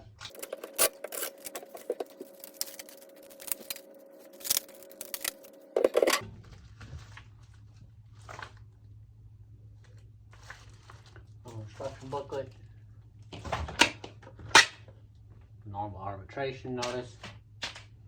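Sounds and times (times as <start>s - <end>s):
packaging crackling and clicking: 0.3s - 6.2s.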